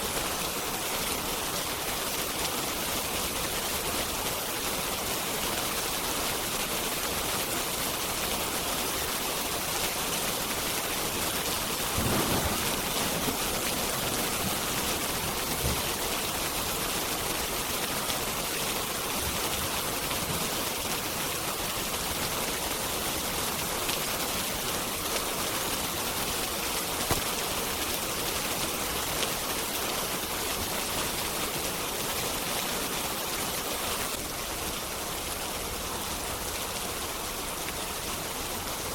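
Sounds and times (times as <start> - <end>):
heavy rain hissing: 0.0 - 38.9
log fire crackling: 9.6 - 21.1, 26.5 - 28.4.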